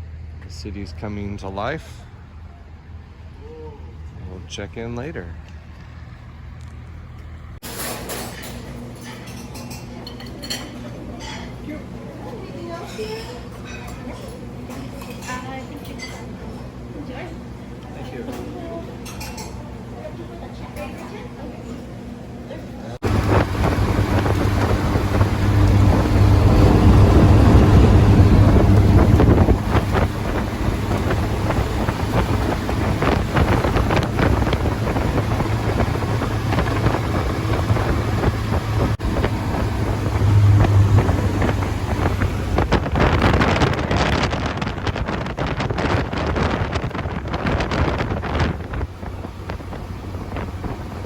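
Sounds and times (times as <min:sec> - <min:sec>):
sports car engine drone: 0:23.0 - 0:51.0
wind buffeting microphone: 0:23.0 - 0:51.0.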